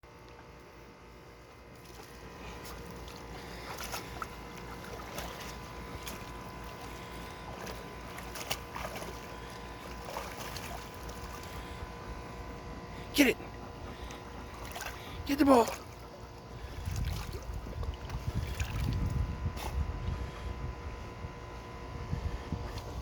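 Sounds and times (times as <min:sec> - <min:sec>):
water splashing in a pool: 0:01.7 - 0:11.8, 0:14.5 - 0:19.2.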